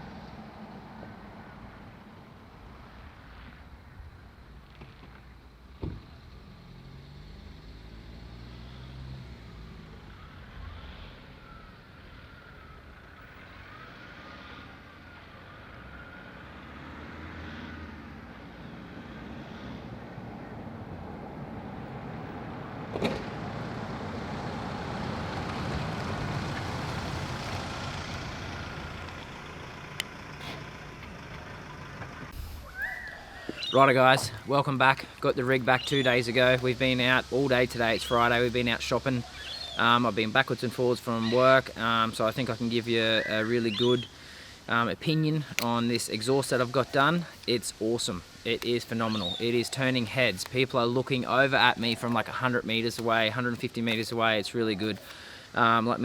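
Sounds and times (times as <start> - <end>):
road and wind noise: 0.0 - 56.0
diesel engine running: 19.5 - 35.9.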